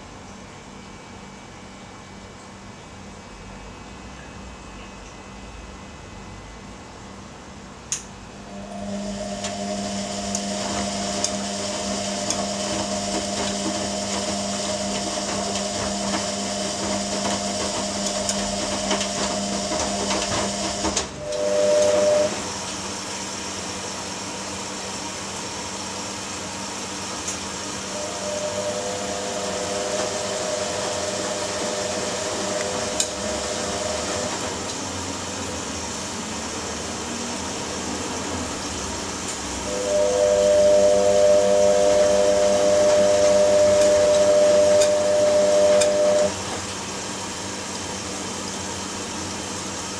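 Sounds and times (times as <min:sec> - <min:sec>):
washing machine motor hum: 0:00.0 - 0:49.9
short electronic tone: 0:27.9 - 0:30.0, 0:39.7 - 0:46.4.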